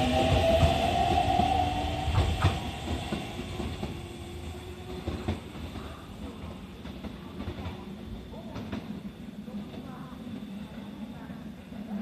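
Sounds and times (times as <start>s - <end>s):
electric train pulling away: 0.0s - 5.8s.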